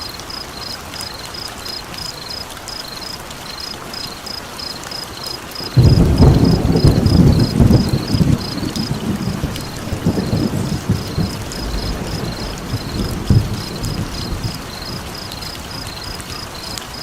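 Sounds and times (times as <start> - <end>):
rain hiss: 0.0 - 17.0
fire crackling: 4.3 - 17.0
rolling rumble of thunder: 5.7 - 16.8.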